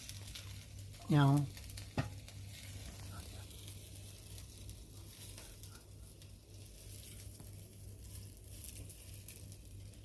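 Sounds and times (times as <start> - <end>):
meat sizzling and popping: 0.0 - 10.0
stove low hum: 0.0 - 10.0.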